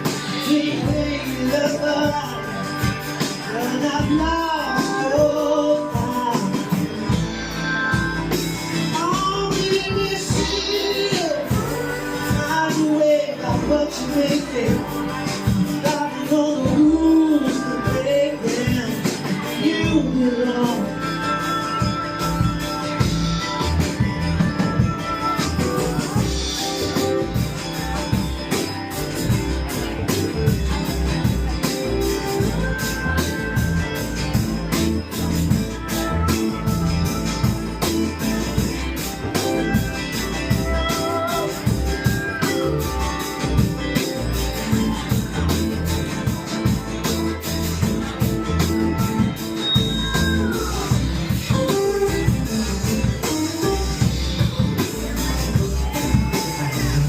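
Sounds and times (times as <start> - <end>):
drum beat: 0.0 - 57.0
electric guitar: 0.0 - 57.0
person singing: 0.0 - 57.0
sliding guitar notes: 0.0 - 57.0.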